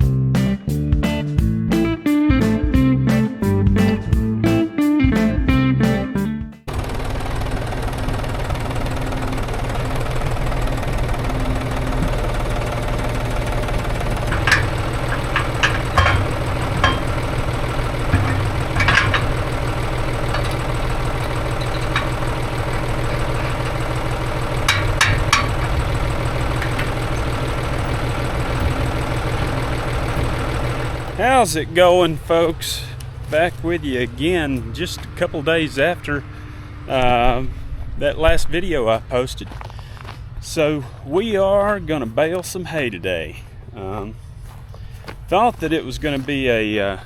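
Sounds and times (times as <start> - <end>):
diesel engine idling: 6.7 - 38.0, 38.9 - 47.0
short sharp clanks: 11.6 - 31.3.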